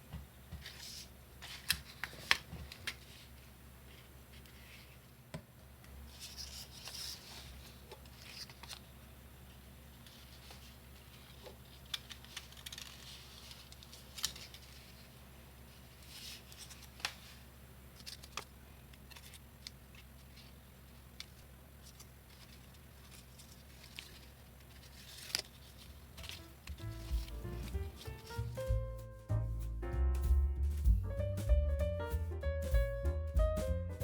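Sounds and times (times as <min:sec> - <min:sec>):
paper crinkling: 0:00.6 - 0:05.0, 0:06.1 - 0:08.9, 0:10.0 - 0:28.6.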